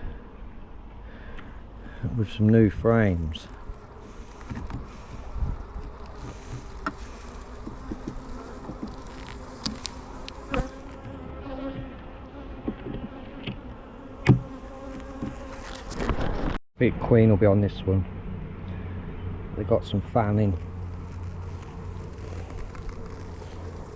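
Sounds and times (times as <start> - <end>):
bees buzzing: 3.2 - 16.1, 18.2 - 23.9.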